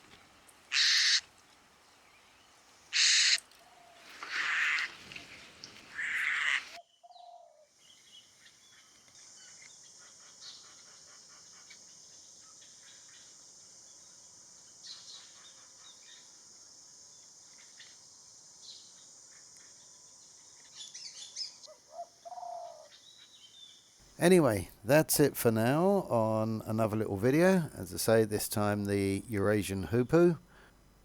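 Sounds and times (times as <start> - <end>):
bird harsh raspy call: 0.7 - 1.2, 3.0 - 3.4, 6.0 - 6.8
steady high hiss: 24.1 - 31.0.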